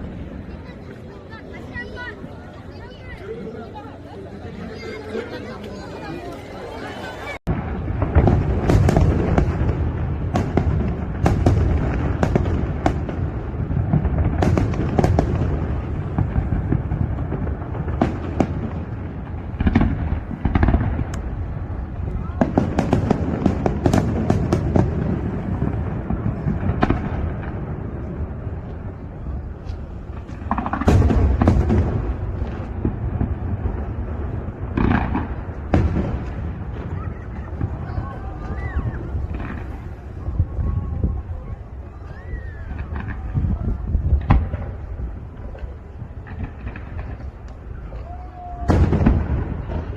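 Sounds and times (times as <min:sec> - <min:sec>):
low rumble of bursting shells: 0:07.5 - 0:41.0
fireworks crackles and bangs: 0:07.5 - 0:49.9.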